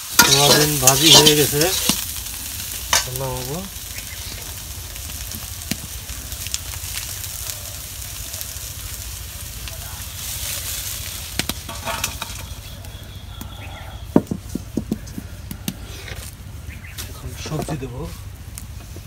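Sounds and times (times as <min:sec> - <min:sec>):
food sizzling in hot oil: 0:00.0 - 0:14.2.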